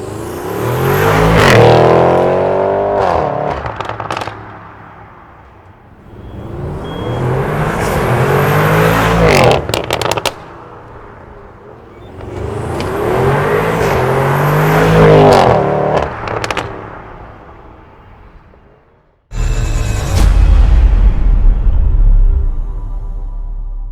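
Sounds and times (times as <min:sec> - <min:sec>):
car engine accelerating hard: 0:00.0 - 0:04.3, 0:06.4 - 0:10.4, 0:12.0 - 0:16.7
exhaust pops and crackles: 0:03.0 - 0:04.8, 0:09.4 - 0:11.0, 0:15.3 - 0:17.0.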